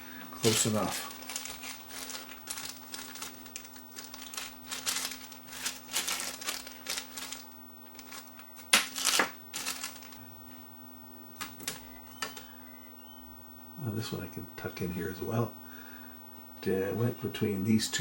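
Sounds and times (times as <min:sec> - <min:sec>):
rustling of small parts: 0:00.4 - 0:10.2.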